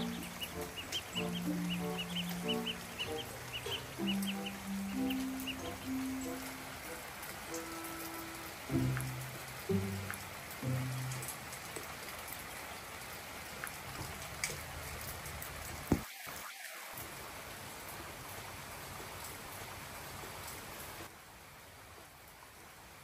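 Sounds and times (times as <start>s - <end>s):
drops ticking: 0.0s - 12.5s
rain on wet paving: 0.0s - 23.0s.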